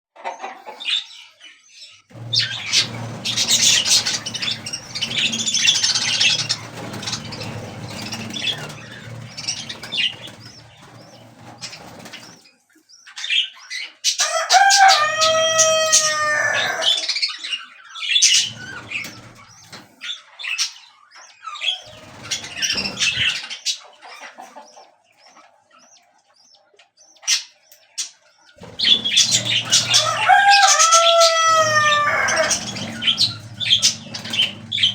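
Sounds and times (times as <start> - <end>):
wings flapping and rustling: 2.1 - 12.5, 14.6 - 16.9, 18.3 - 20.0, 21.8 - 23.5, 28.6 - 34.9
bird crowing: 14.2 - 17.1, 28.6 - 34.9
bird calling: 28.6 - 34.9.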